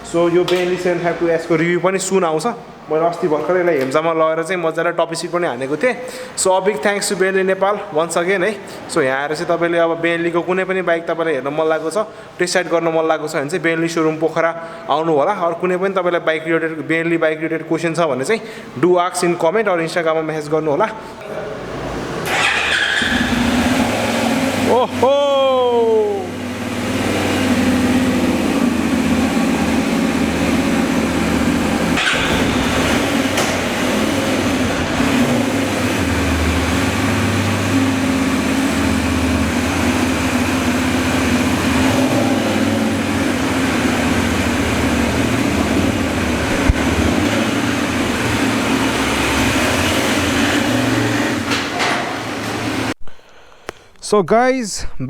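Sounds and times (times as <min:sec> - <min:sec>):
motorcycle engine running: 0:22.3 - 0:51.5.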